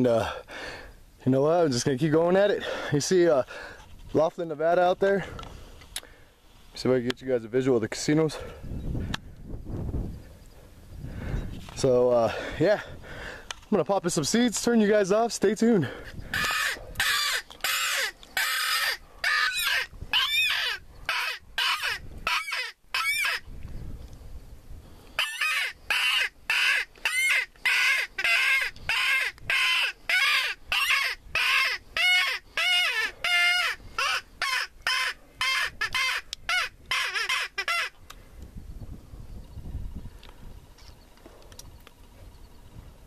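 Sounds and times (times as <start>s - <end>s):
squealing predator call: 16.3s - 23.4s, 25.2s - 38.0s.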